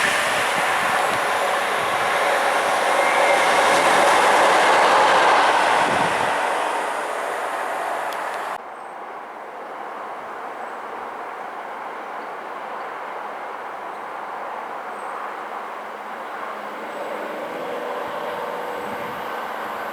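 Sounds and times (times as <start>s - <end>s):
train passing at speed: 0.0s - 8.6s, 15.2s - 19.9s.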